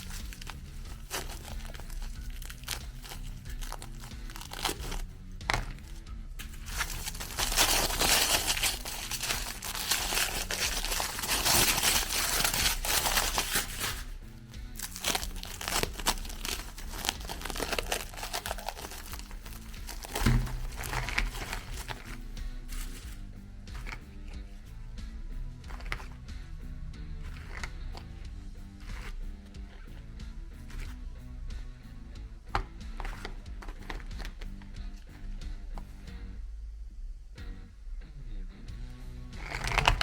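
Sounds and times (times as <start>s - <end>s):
meat grinder crunching cookies: 0.0s - 5.1s.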